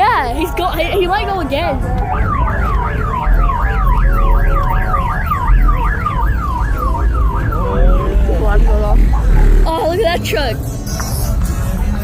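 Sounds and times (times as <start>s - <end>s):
low rumble: 0.5s - 11.6s
electronic siren yelping: 0.8s - 9.8s.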